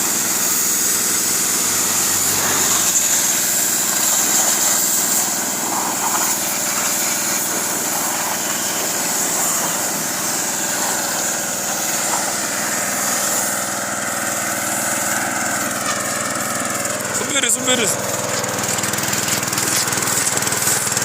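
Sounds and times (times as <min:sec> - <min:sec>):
small petrol engine running: 0:00.0 - 0:21.0.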